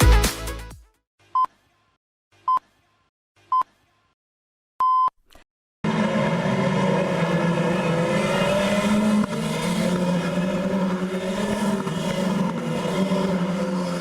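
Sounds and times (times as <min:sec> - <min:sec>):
race car engines at speed: 0:05.8 - 0:14.0.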